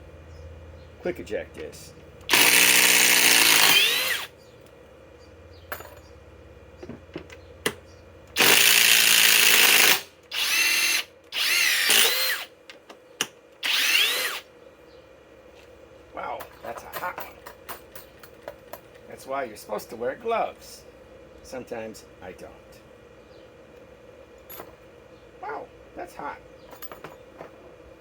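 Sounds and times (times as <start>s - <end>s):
impact driver backing out screws: 2.3s - 4.3s, 8.4s - 12.5s.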